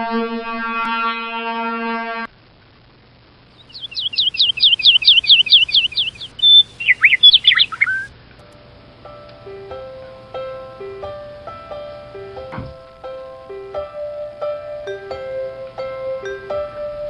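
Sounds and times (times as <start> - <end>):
held horn-like note: 0.0 - 2.3
bird tweeting: 3.5 - 8.1.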